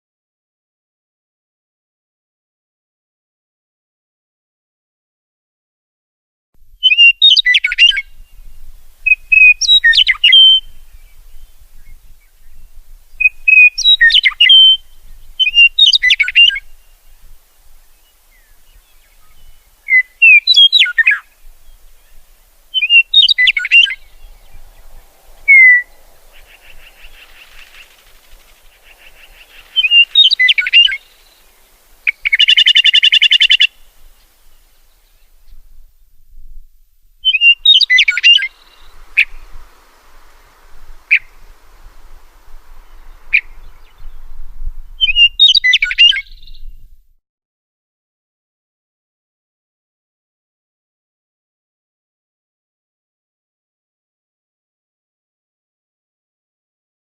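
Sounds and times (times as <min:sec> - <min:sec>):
songbird chirping: 0:06.8 - 0:46.9
soft buzzing: 0:21.2 - 0:37.2, 0:37.9 - 0:45.0.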